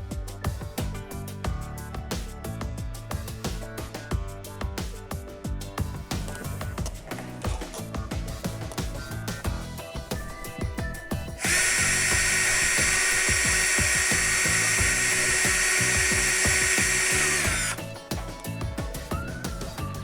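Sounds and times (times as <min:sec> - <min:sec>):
background music: 0:00.0 - 0:20.0
power drill running: 0:11.4 - 0:17.8.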